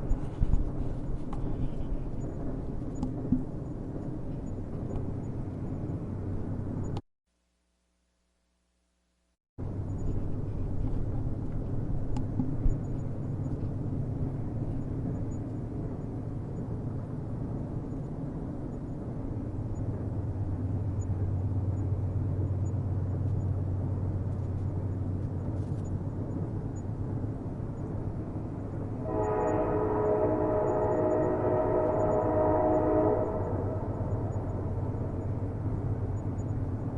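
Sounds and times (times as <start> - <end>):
train rumbling: 0.0 - 7.0, 9.6 - 36.9
train horn chord: 29.0 - 34.7.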